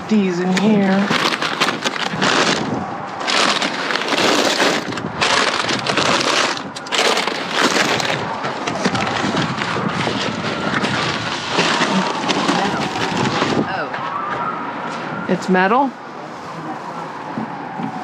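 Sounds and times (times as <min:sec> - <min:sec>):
junk crackling and crunching: 0:00.0 - 0:15.2
sharp cracks: 0:01.0 - 0:13.7.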